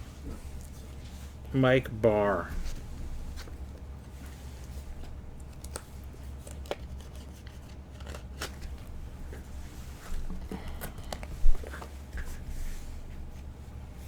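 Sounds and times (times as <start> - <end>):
steady low hum: 0.0 - 14.0
cards being handled and flipped: 2.6 - 12.4.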